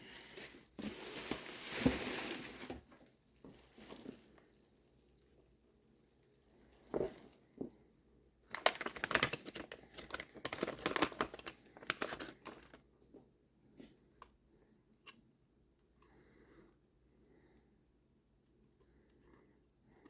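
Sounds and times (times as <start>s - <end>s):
crackly packaging rustling: 0.0s - 7.8s, 8.4s - 13.2s.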